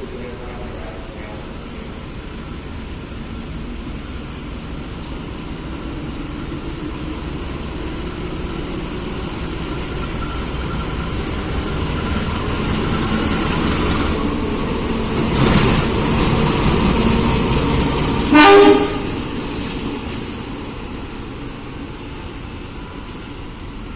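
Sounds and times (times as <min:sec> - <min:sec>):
train rumbling: 0:00.0 - 0:23.9
train horn blast: 0:18.3 - 0:19.2.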